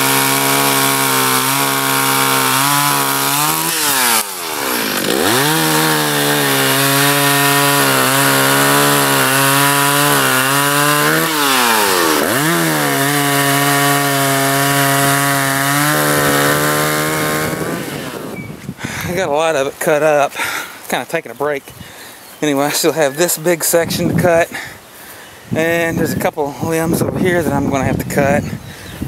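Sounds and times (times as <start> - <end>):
chainsaw cutting wood: 0.0 - 19.2.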